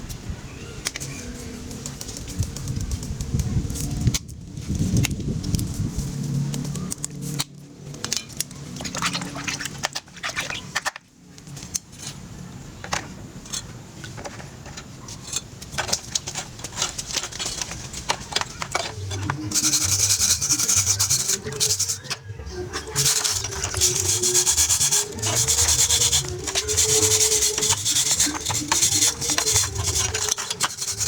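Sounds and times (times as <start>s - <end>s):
tools clicking and knocking: 12.9s - 31.0s
rapid loud scraping: 14.4s - 31.0s.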